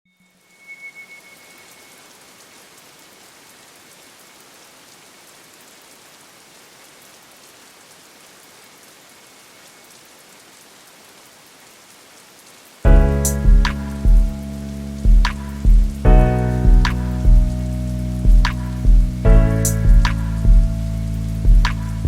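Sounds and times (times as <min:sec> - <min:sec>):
steady rain hiss: 0:00.1 - 0:22.0
raindrop ticks: 0:12.8 - 0:22.0.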